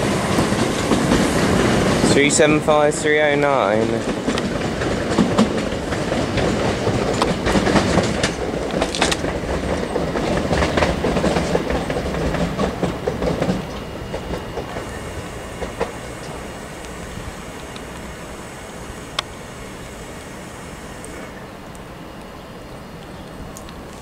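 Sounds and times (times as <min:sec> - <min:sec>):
train wheels clacking over points: 0:00.0 - 0:21.9.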